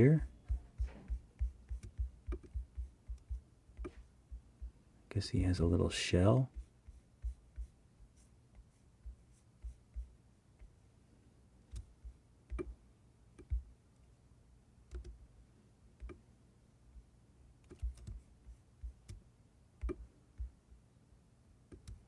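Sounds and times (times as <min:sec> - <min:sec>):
faint computer mouse clicks: 0:00.4 - 0:04.1, 0:11.7 - 0:12.8, 0:13.4 - 0:13.7, 0:14.9 - 0:15.2, 0:16.0 - 0:16.2, 0:17.6 - 0:18.2, 0:19.8 - 0:20.6, 0:21.7 - 0:22.0.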